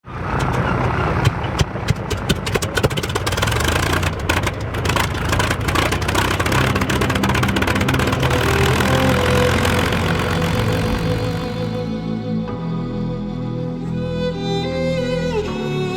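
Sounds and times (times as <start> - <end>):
piston aircraft engine starting: 0.1 - 11.9
music with held chords: 4.8 - 15.9.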